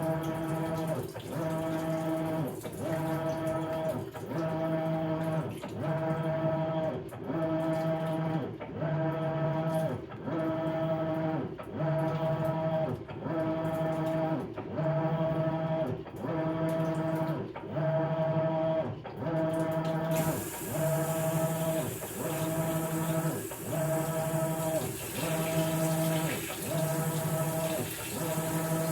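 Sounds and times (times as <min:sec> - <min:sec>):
washing machine agitating: 0:00.0 - 0:03.5, 0:20.0 - 0:28.9
hiss: 0:20.2 - 0:28.9.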